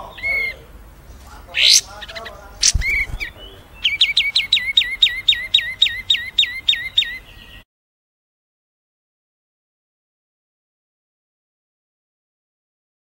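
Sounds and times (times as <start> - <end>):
scattered bird chirps: 0.0 - 7.6
songbird whistling downward notes: 2.6 - 7.6.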